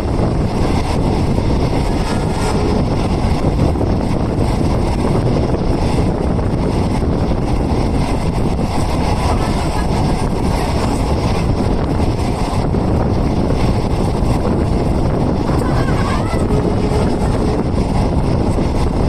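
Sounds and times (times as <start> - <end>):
train rumbling inside coach: 0.0 - 19.0.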